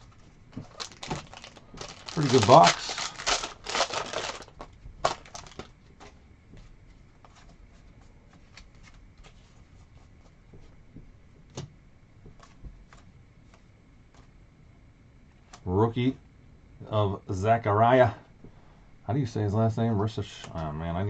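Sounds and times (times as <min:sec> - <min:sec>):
foil wrapper crinkling and tearing: 0:00.5 - 0:05.8.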